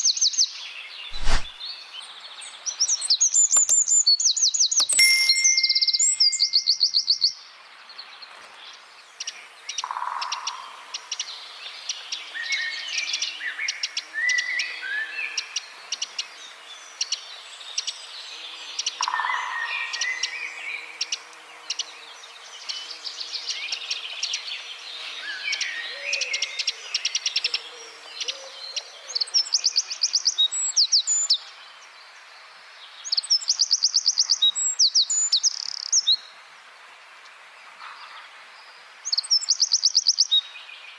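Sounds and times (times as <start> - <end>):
wren singing: 2.9 - 7.4, 33.0 - 36.2.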